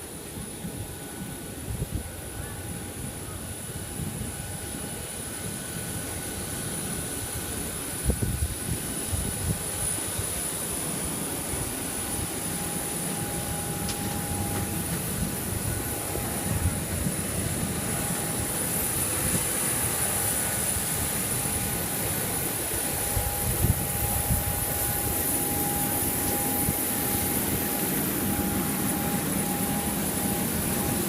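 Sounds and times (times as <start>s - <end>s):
jet turbine whine: 0.0s - 31.0s
wind buffeting microphone: 7.2s - 10.5s, 11.4s - 31.0s.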